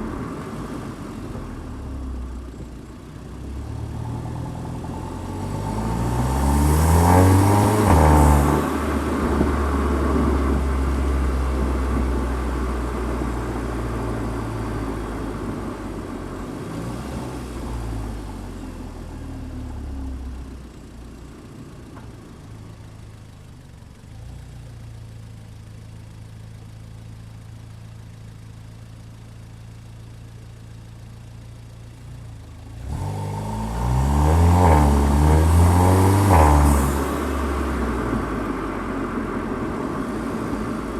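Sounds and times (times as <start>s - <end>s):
car engine accelerating hard: 0.0s - 23.1s, 31.5s - 40.9s.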